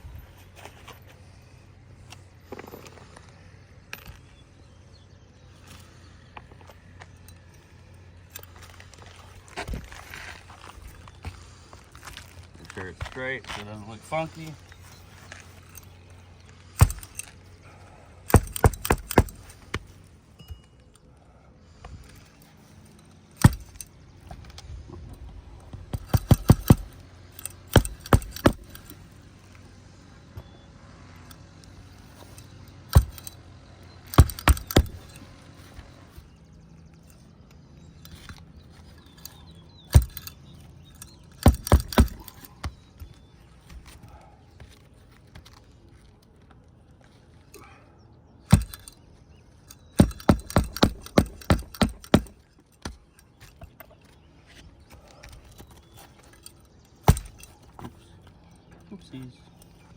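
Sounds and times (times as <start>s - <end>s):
hatchet striking roofing nails: 16.6s - 20.0s, 23.4s - 24.6s, 25.8s - 29.1s, 32.2s - 33.4s, 34.0s - 36.1s, 39.0s - 44.8s, 48.5s - 49.0s, 49.7s - 54.2s, 57.0s - 57.9s.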